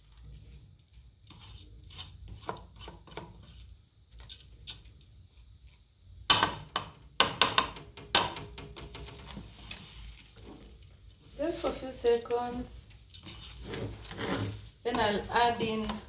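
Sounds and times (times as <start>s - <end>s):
spoon scraping and knocking pot: 1.3s - 3.7s, 6.3s - 9.6s.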